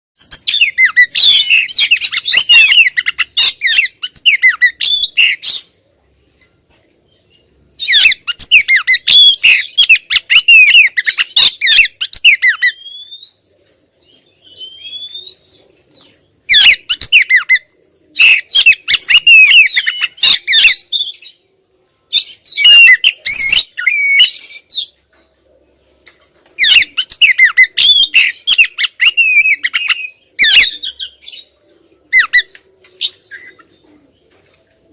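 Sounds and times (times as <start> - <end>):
bird chattering and squawking: 0.2 - 5.8, 7.8 - 13.2, 16.5 - 21.2, 26.6 - 31.5, 32.1 - 34.1.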